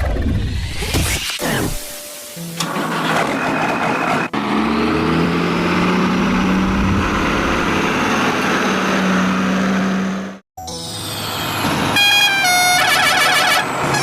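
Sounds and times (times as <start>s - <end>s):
vehicle engine humming: 2.3s - 10.4s.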